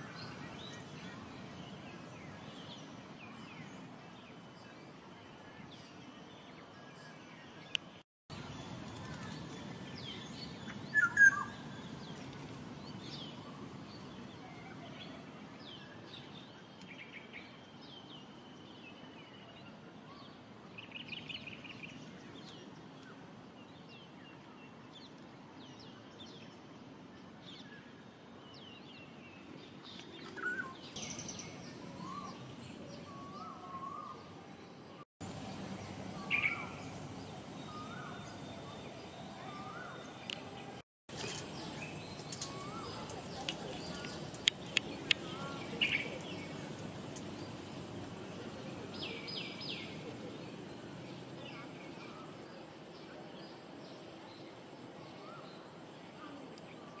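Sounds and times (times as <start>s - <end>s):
small birds chirping: 0.0s - 26.6s, 27.5s - 57.0s
steady high-pitched hiss: 0.0s - 57.0s.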